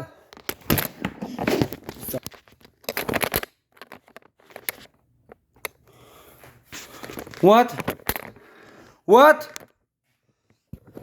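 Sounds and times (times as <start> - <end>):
rustling and scraping handling noise: 0.4 - 5.8, 6.4 - 8.9.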